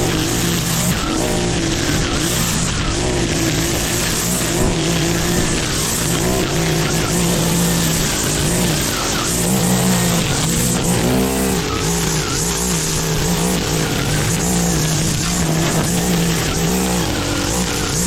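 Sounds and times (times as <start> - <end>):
lawn mower engine labouring: 0.0 - 18.0.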